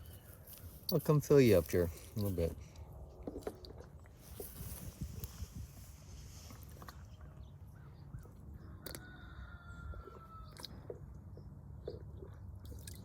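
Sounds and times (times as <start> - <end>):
low steady rumble: 0.0 - 13.0
faint crows cawing: 7.7 - 11.0.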